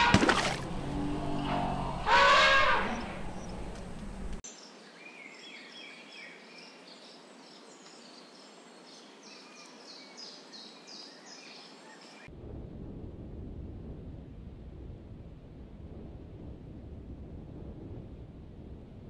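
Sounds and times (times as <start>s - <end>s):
outdoor background noise: 0.0s - 19.0s
small birds chirping: 1.4s - 12.3s.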